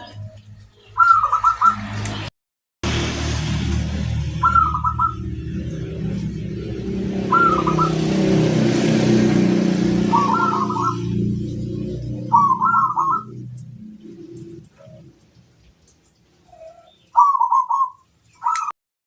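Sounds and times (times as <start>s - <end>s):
low motor-like rumble: 0.0s - 1.0s, 1.8s - 8.2s, 9.0s - 15.8s
dove cooing: 7.2s - 8.4s, 9.6s - 13.4s, 16.5s - 18.7s.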